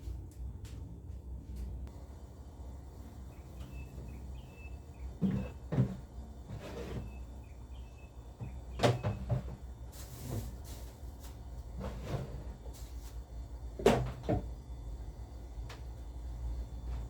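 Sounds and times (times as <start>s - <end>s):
knocks and clunks of household items: 5.1s - 7.3s, 8.4s - 10.8s, 11.7s - 13.0s, 13.8s - 14.6s.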